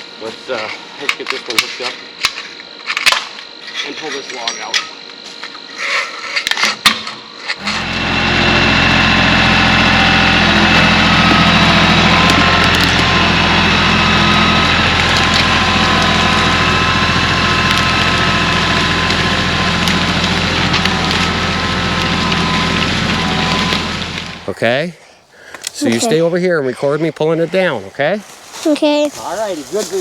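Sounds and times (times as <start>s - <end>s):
tractor engine running: 7.6s - 24.8s.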